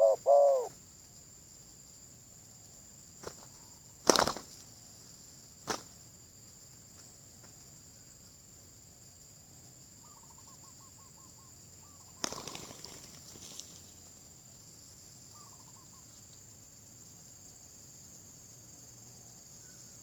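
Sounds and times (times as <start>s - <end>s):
bird calling in falling notes: 0.0s - 0.7s.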